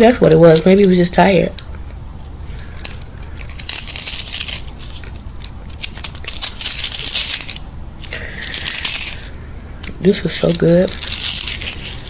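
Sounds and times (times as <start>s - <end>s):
crunching frozen food being chewed: 2.5s - 9.4s, 10.4s - 12.0s.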